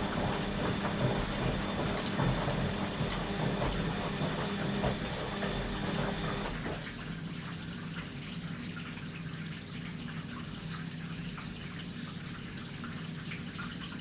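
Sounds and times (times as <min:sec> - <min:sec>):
washing machine humming: 0:00.0 - 0:14.0
water rushing in washing machine: 0:00.0 - 0:14.0
water trickling and dripping: 0:06.3 - 0:14.0.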